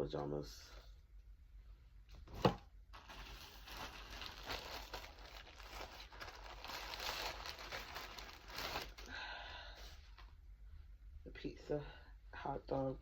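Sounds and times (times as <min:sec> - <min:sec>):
plastic packaging crinkling: 0:02.4 - 0:09.3.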